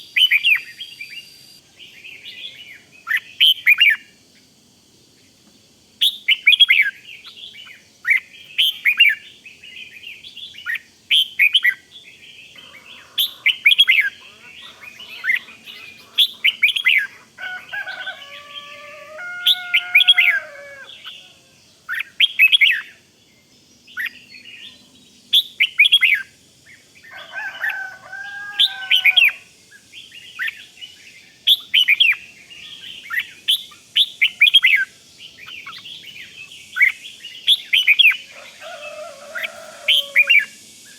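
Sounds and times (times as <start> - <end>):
lower whistled bird phrase: 0.0 - 1.6, 12.6 - 21.4, 35.5 - 40.9
bird sharp high chirps: 0.0 - 2.4, 31.5 - 38.3.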